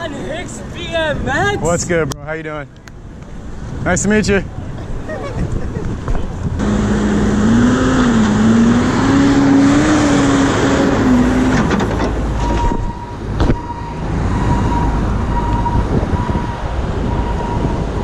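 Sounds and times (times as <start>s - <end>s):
city street traffic: 0.0s - 18.0s
wavering vehicle drone: 4.4s - 18.0s.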